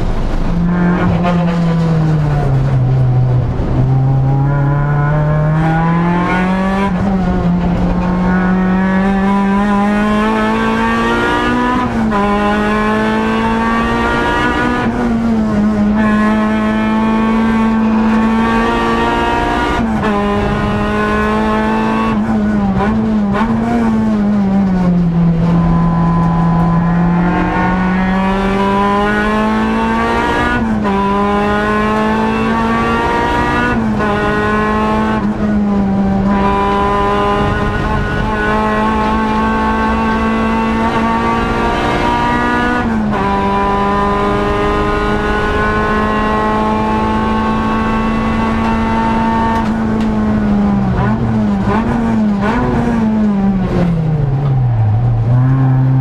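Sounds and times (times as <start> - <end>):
race car engine at high revs: 0.0 - 56.0.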